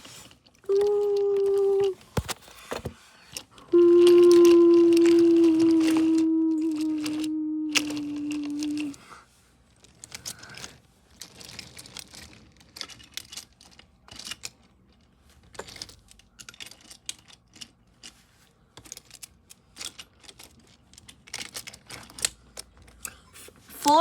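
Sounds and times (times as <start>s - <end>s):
clicks and rattles of hard objects: 9.7s - 24.0s.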